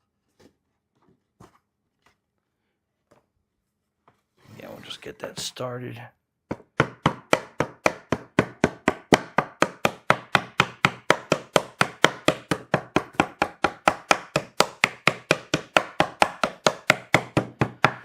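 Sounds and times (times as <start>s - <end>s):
rapid tapping on wooden box: 6.5s - 18.0s.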